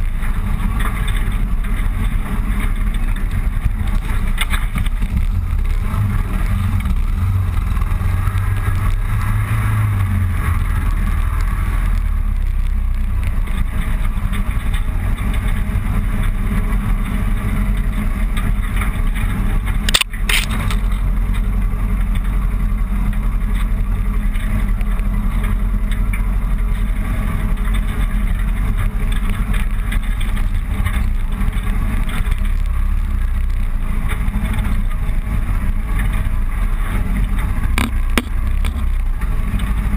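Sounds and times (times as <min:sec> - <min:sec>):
motorcycle engine: 0:00.0 - 0:39.9
wind noise on microphone: 0:00.0 - 0:39.9
sharp click: 0:19.9 - 0:20.9.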